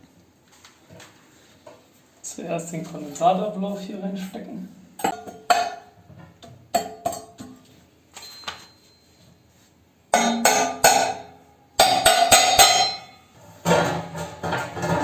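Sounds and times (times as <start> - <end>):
metal pipe parts clanking: 10.1 - 15.0.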